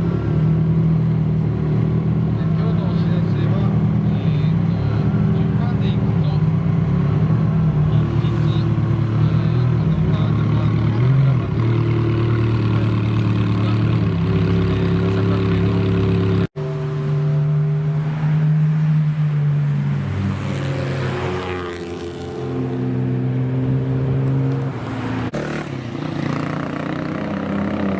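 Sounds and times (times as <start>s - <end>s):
car engine running at low revs: 0.7s - 18.0s.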